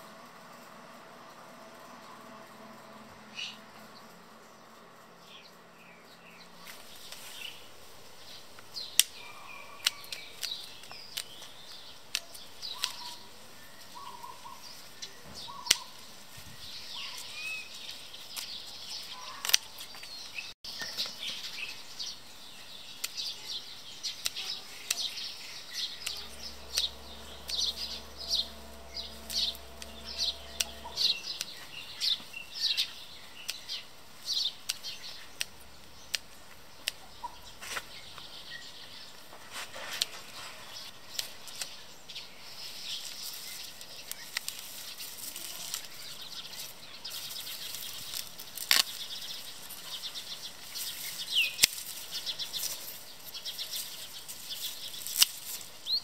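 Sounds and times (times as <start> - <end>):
birds chirping: 1.2 - 39.4
low hum with pulsing tone: 25.4 - 32.2.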